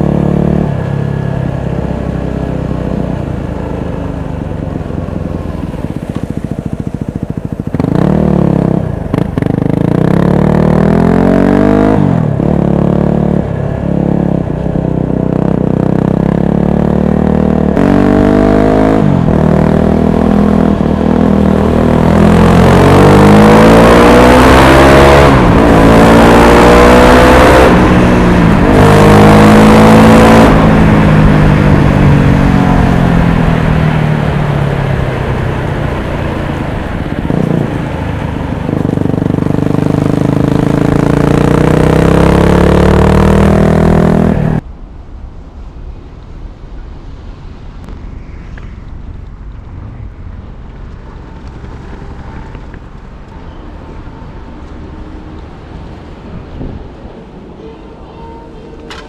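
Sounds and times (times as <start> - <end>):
motorcycle accelerating through gears: 0.0 - 44.6.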